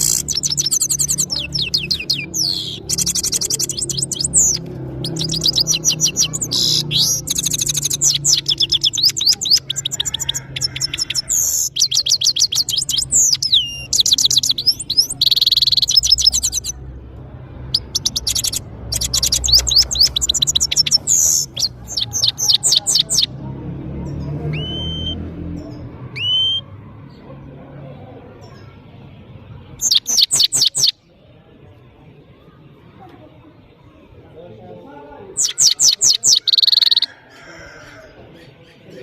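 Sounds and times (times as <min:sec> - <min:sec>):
goldfinch twittering song: 0:00.0 - 0:16.8, 0:17.7 - 0:23.3, 0:29.8 - 0:31.0.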